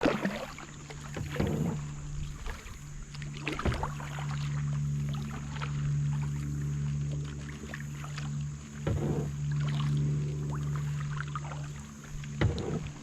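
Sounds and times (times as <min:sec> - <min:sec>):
paddle splashing water: 0:00.0 - 0:13.0
low hum: 0:00.4 - 0:13.0
dull knocks: 0:12.3 - 0:13.0.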